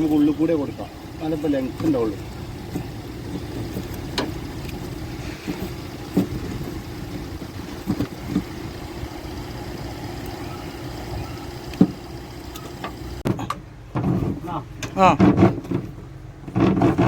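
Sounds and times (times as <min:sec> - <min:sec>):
steady low drone: 0:00.0 - 0:13.2.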